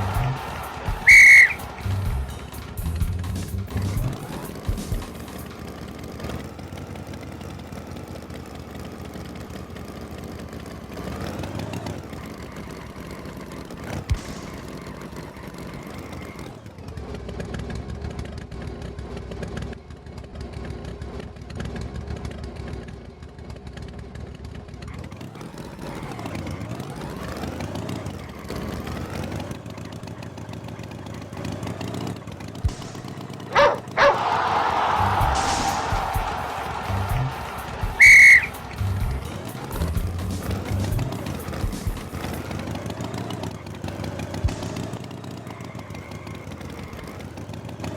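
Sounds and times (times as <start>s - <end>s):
short sharp sounds: 0.0s - 2.0s
tractor engine revving: 0.0s - 47.9s.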